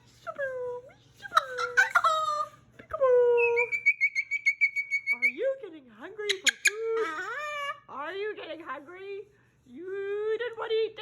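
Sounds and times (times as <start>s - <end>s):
cockatoo calling and whistling: 3.4s - 5.4s.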